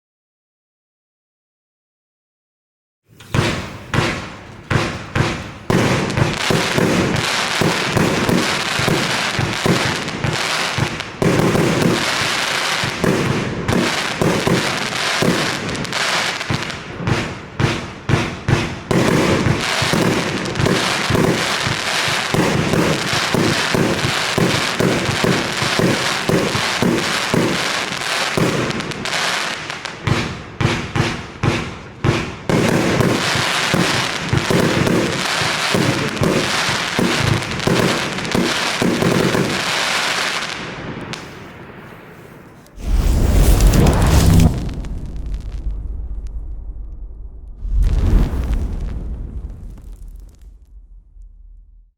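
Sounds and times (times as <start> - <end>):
firework shots and bursts: 3.1 - 51.9
crackling hiss: 40.0 - 51.9.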